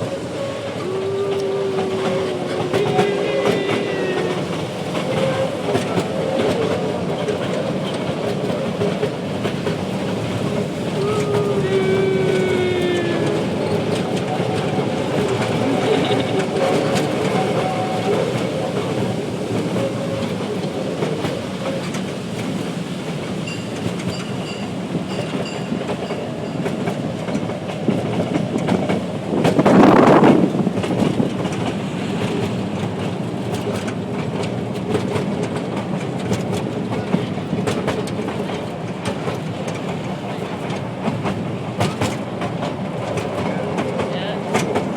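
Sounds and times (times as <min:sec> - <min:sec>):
train wheels rumbling on rails: 0:00.0 - 0:44.9
rush of noise: 0:29.2 - 0:31.3.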